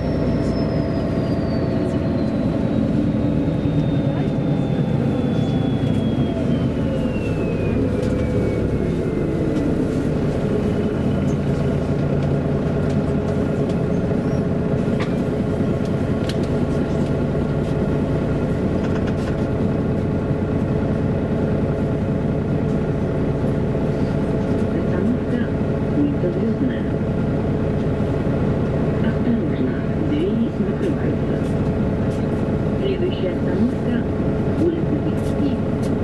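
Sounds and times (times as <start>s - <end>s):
falling whine: 0.0s - 11.4s
bus drivetrain hum: 0.0s - 36.0s.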